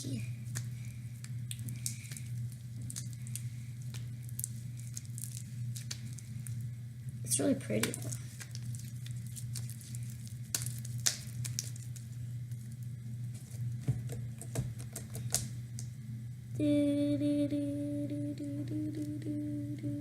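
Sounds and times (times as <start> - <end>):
steady held tone: 16.5 - 20.0.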